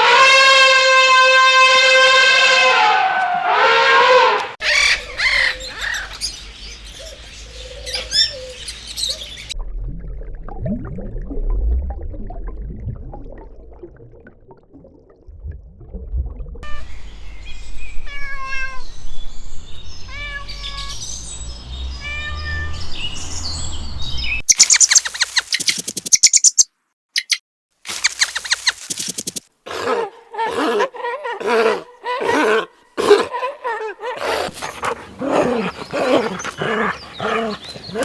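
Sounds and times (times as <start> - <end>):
cat meowing: 18.0 - 18.9, 20.0 - 21.0, 22.0 - 22.8.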